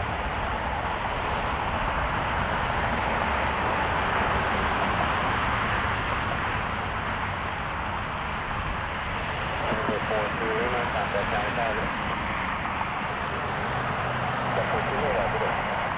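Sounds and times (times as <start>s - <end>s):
jet engine rushing: 9.6s - 15.9s.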